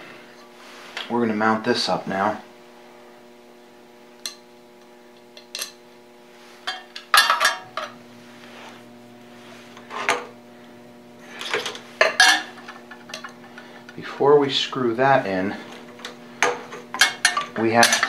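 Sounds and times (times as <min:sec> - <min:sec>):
steady hum: 0:00.0 - 0:18.0
metal clinks and knocks: 0:16.0 - 0:18.0.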